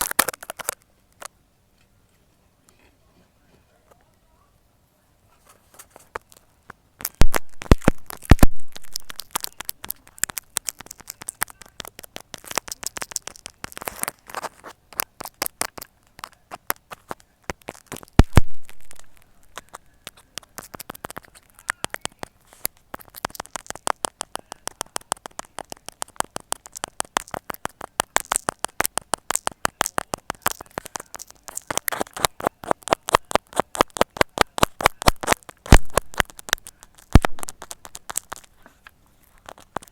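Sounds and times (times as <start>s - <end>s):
louder pops: 7.0s - 13.9s, 16.5s - 21.3s, 22.9s - 38.5s
needle poking through material: 7.0s - 39.9s.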